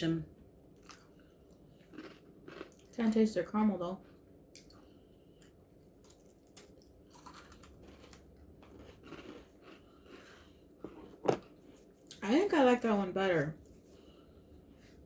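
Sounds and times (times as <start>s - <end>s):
crunching and chewing brittle: 0.8s - 3.1s, 4.0s - 12.2s.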